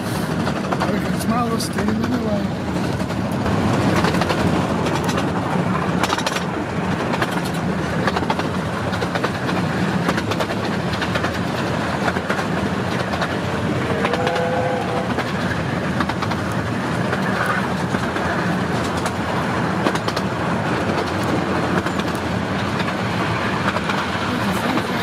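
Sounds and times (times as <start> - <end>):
train wheels rumbling on rail: 0.0 - 25.0
clicks over rail joints: 0.4 - 23.0.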